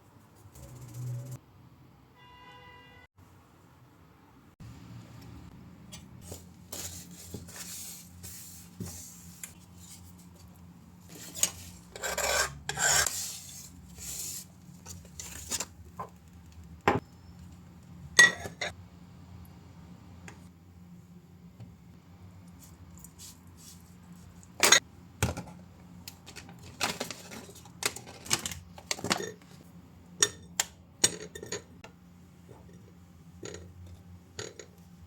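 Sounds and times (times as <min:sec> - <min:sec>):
scraping and rustling by hand: 0:05.9 - 0:15.8.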